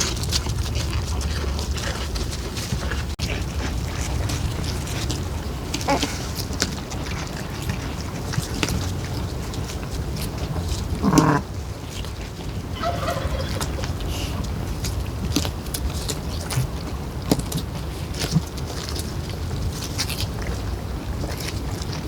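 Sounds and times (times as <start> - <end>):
steady low rumble: 0.0 - 17.2
farm animal call: 11.0 - 11.5, 12.5 - 14.8.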